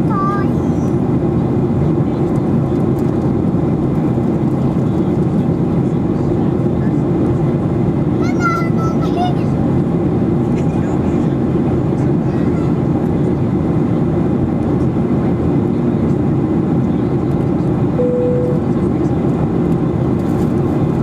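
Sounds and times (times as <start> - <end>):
airplane engines rumbling in flight: 0.0 - 21.0
steady tone: 18.0 - 18.8.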